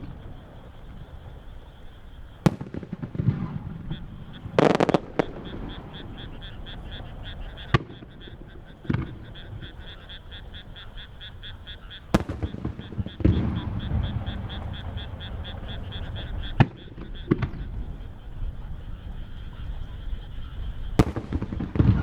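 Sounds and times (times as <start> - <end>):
fireworks booming: 0.0 - 22.0
rhythmic high calling: 3.8 - 17.8.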